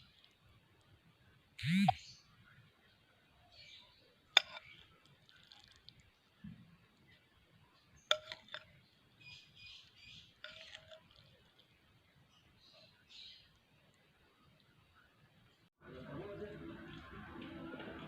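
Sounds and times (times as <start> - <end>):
sharp clicks: 1.6 - 2.0
lovebirds chirping: 6.2 - 14.6.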